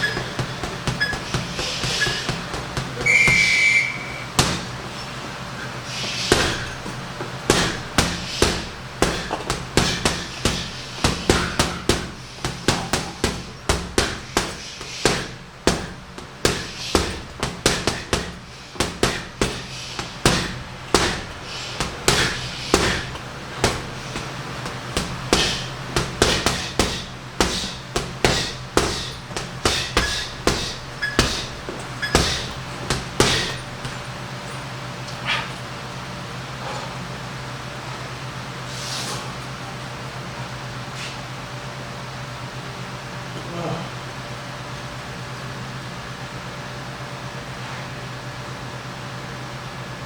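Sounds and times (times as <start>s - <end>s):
punches thudding on heavy bag: 0.0s - 34.4s.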